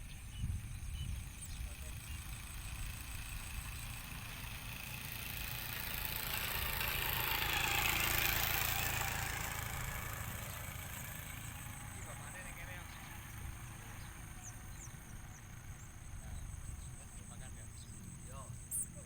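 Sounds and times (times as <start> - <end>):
vehicle passing by: 0.6 - 19.0.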